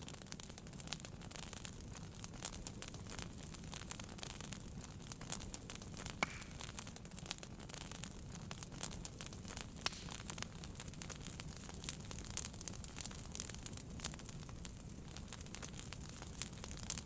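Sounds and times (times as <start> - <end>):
fireplace fire crackling: 0.0 - 17.0.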